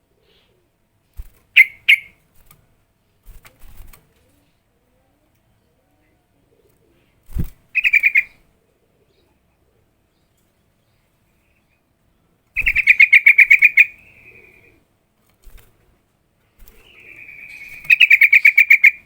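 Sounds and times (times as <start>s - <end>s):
bulbul calling: 1.5s - 2.2s, 7.8s - 8.4s, 12.6s - 14.8s, 16.8s - 19.0s
bird chattering notes: 1.6s - 2.2s, 7.8s - 8.4s, 12.6s - 14.8s, 16.8s - 19.0s.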